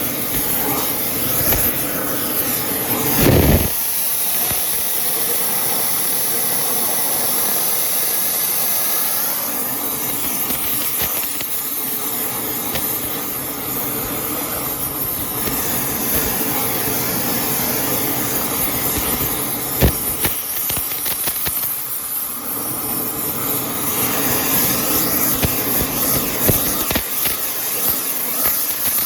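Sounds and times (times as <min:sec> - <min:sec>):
welding arc hissing and crackling: 0:00.0 - 0:29.0
sharp welding pops: 0:00.1 - 0:05.3, 0:10.0 - 0:22.2, 0:23.9 - 0:29.0.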